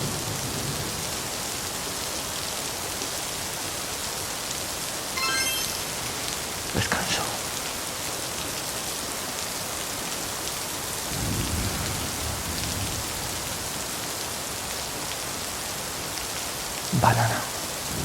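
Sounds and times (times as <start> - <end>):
steady rain falling: 0.0 - 18.0
low rumble of thunder: 11.1 - 13.5.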